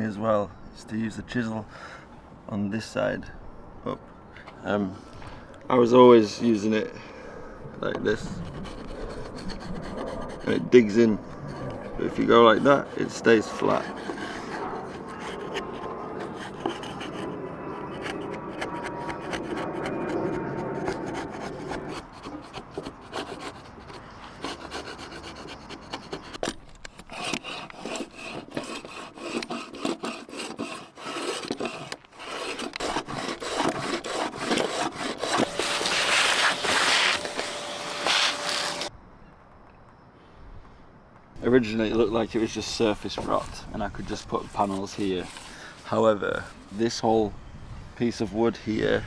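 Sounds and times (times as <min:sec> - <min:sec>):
chisel scraping wood: 0:08.3 - 0:38.9, 0:42.4 - 0:46.6.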